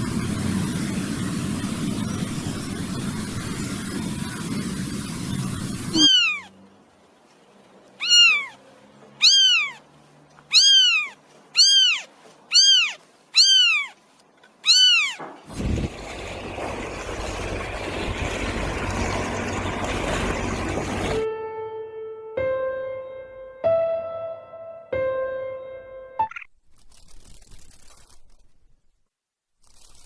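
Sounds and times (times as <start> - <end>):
steady hiss: 0.0 - 6.0
kitten meowing: 5.9 - 6.5, 8.0 - 8.6, 9.2 - 9.8, 10.5 - 14.0, 14.6 - 15.2.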